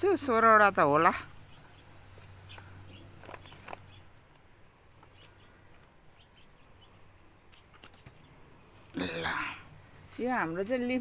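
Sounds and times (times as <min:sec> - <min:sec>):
soft clicks and rustles: 0:02.1 - 0:06.0
faint bird chirps: 0:05.0 - 0:08.4.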